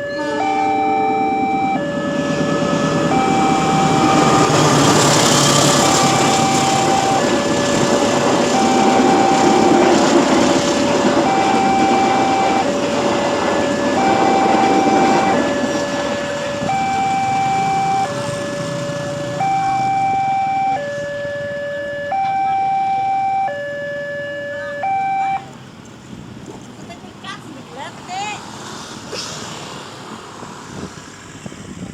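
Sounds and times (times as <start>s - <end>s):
two-tone level-crossing alarm: 0.0s - 25.5s
passing train rumbling: 0.0s - 31.9s.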